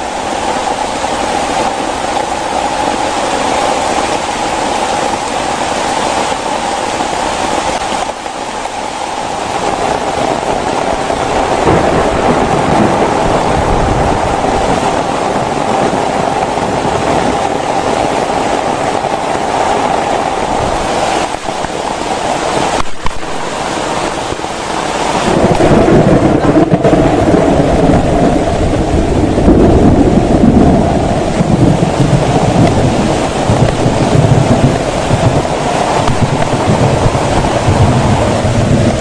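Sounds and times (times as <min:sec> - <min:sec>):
heavy rain falling: 0:00.0 - 0:39.0
deep thunder rumble: 0:09.4 - 0:23.6, 0:25.0 - 0:39.0.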